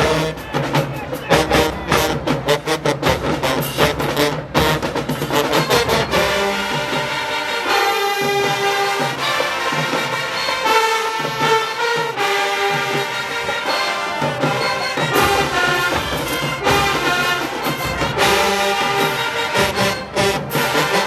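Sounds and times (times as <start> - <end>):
brass held notes: 0.0 - 21.0
marching band playing: 0.0 - 21.0
drums hitting: 11.2 - 21.0.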